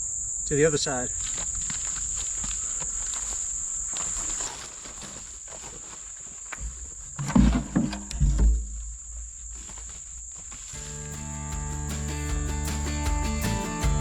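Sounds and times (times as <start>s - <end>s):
high insect buzz: 9.0s - 14.0s
low thumps and knocks: 11.0s - 14.0s.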